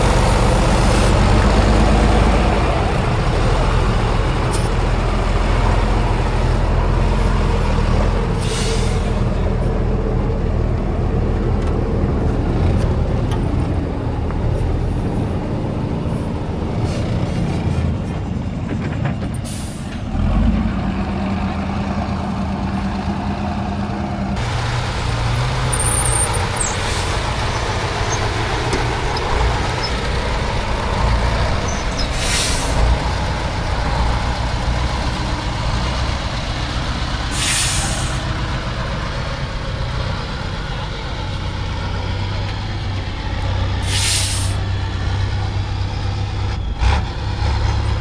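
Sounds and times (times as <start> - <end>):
truck diesel engines running: 0.0 - 48.0
air brake hisses: 8.4 - 9.2, 19.5 - 20.0, 32.0 - 32.9, 37.3 - 38.3, 43.8 - 44.6.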